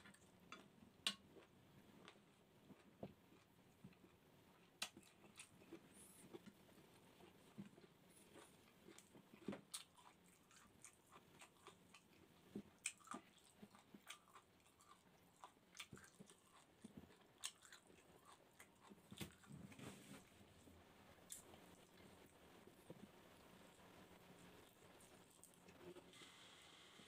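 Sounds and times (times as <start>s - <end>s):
wet chewing sounds: 0.0s - 20.4s.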